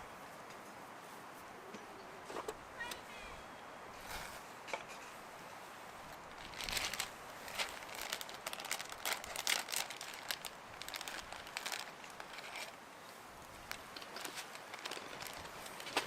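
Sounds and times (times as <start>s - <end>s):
crinkling and crunching: 6.0s - 12.8s, 13.4s - 16.0s.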